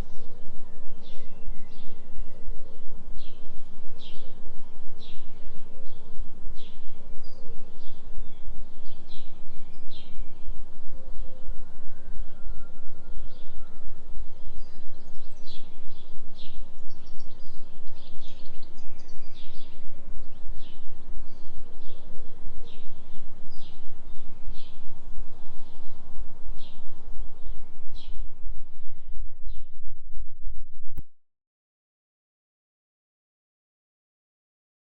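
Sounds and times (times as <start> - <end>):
low pulsing synthetic drone: 0.0 - 31.0
small birds chirping: 13.3 - 29.7.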